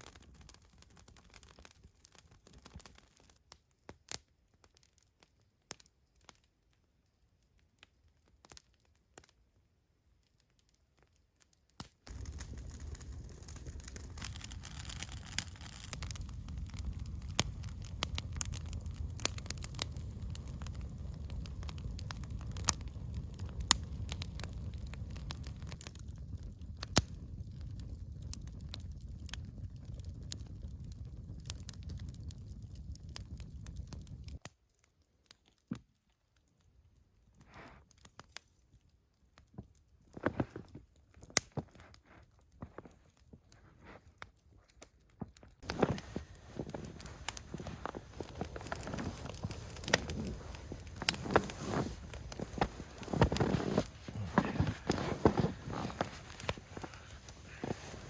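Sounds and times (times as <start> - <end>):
campfire crackling and popping: 0.0 - 58.0
steady low rumble: 45.6 - 58.0.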